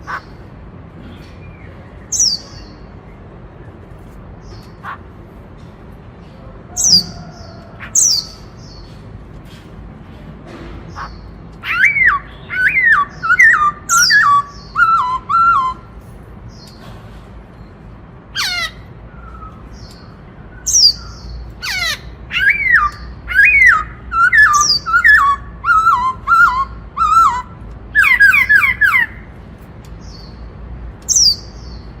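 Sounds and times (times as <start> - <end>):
bird singing whistled phrases: 11.6 - 15.9, 19.1 - 21.1, 22.4 - 29.1.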